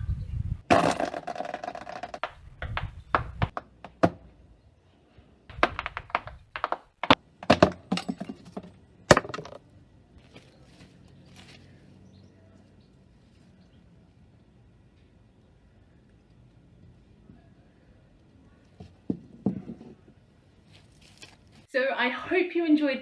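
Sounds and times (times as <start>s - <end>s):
clattering: 0.7s - 2.4s, 5.5s - 9.6s
sharp knocks and thunks: 0.7s - 4.4s, 5.5s - 9.6s.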